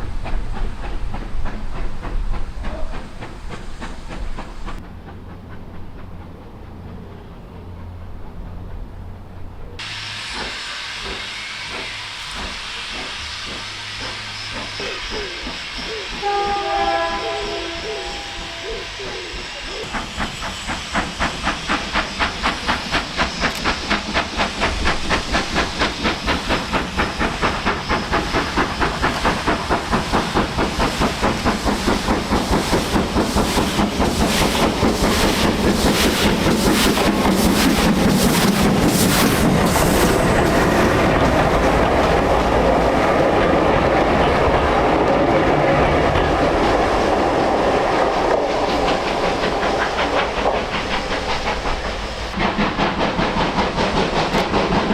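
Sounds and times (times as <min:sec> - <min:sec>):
steam hissing: 0:00.0 - 0:07.2, 0:09.8 - 0:54.9
steam train chugging: 0:00.0 - 0:54.9.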